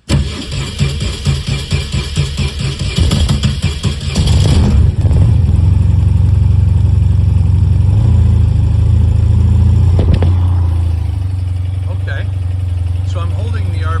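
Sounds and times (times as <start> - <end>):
motorcycle engine starting and idling: 0.0 - 14.0.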